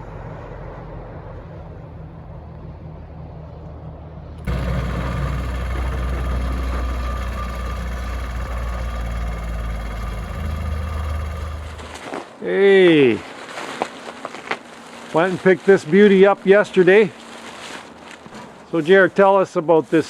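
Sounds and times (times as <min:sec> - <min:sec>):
engine rumble: 0:00.0 - 0:13.2
engine hiss: 0:04.4 - 0:12.4.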